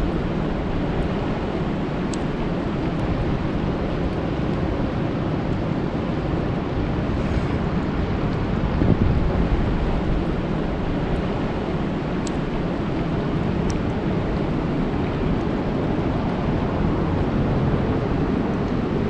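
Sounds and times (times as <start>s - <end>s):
faint sharp drip ticks: 2.1s - 3.1s, 12.2s - 13.1s.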